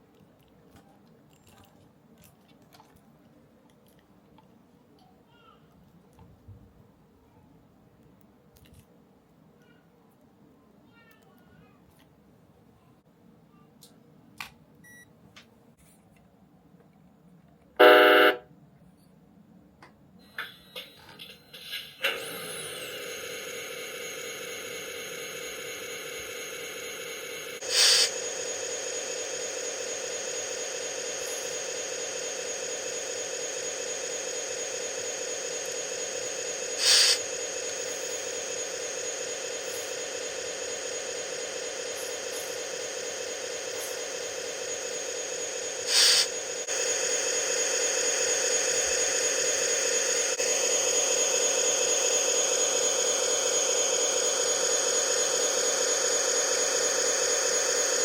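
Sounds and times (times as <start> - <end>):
electronic engine sound: 17.8 - 18.4, 22.0 - 58.0
toy truck horn: 17.8 - 18.5
air hiss bursts: 22.1 - 58.0.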